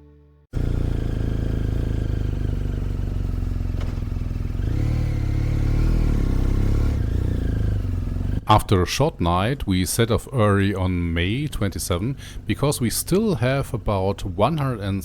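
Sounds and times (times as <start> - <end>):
motorcycle engine running: 0.5 - 15.0.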